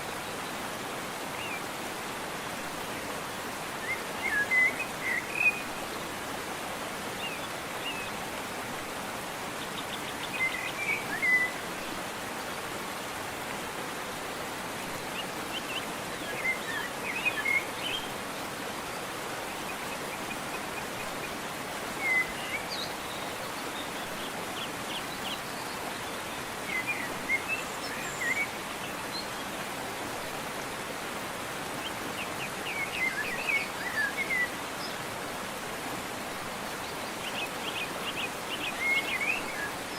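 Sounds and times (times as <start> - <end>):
waterfall rushing: 0.0 - 39.9
songbird chirping: 9.5 - 12.0, 15.0 - 29.6, 36.7 - 39.9.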